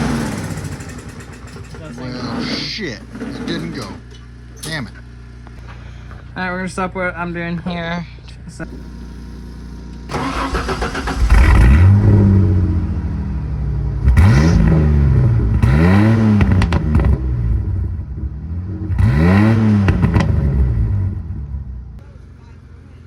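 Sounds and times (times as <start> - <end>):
car engine revving: 0.0 - 4.0, 10.1 - 22.0.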